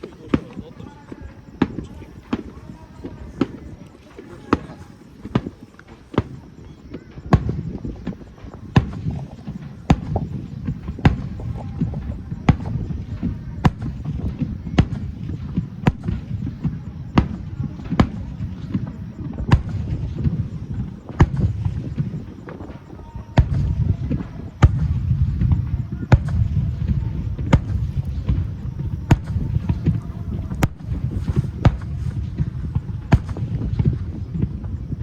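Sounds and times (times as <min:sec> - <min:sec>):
low rumble of booms: 0:06.9 - 0:35.0
fireworks shells bursting: 0:17.2 - 0:34.9.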